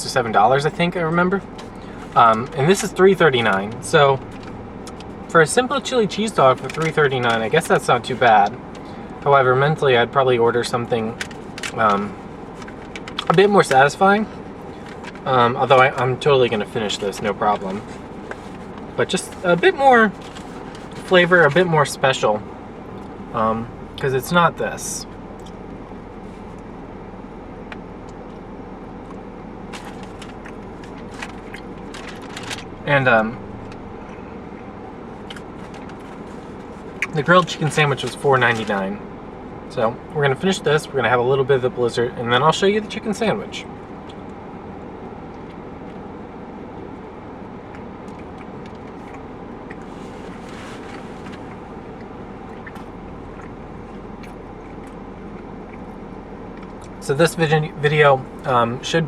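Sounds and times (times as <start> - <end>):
vehicle hum from inside: 0.0 - 59.0
eating clicks and rustles: 29.0 - 32.8, 35.1 - 38.8.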